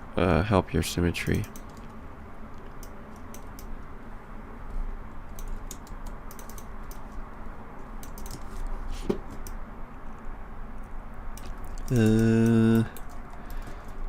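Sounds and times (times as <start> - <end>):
steady background hum: 0.0 - 14.0
keyboard keys clicking: 5.4 - 7.0, 8.0 - 8.4.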